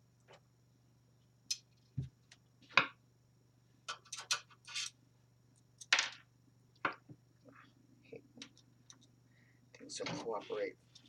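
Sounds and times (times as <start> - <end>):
clicks and scrapes of computer parts: 3.9 - 5.0.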